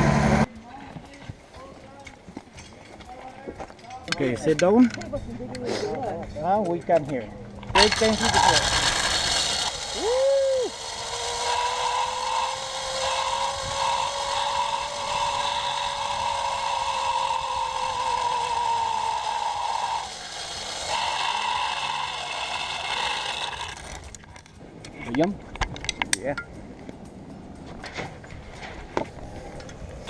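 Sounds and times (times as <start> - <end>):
zipline pulleys whining on cable: 7.6 - 24.5.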